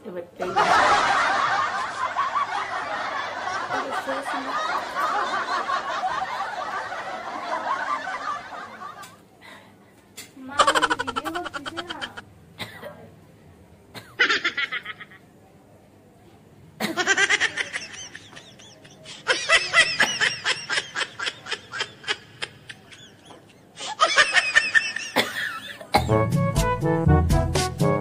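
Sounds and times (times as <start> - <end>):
rapid giggling: 10.6 - 12.2.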